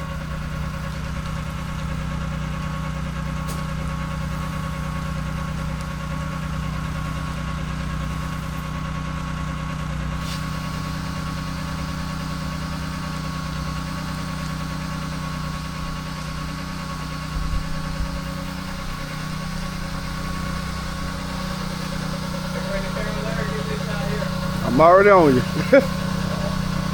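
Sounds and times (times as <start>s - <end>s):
pressure washer engine running: 0.0s - 26.9s
hiss: 10.2s - 26.9s
thin whine: 10.2s - 26.9s.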